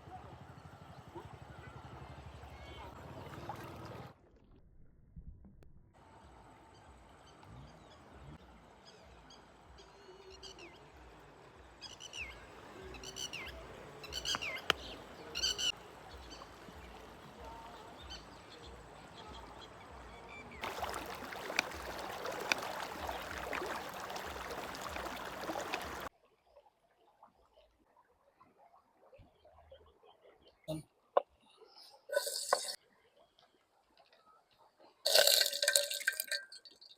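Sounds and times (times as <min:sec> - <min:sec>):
birds chirping falling calls: 0:12.9 - 0:16.6.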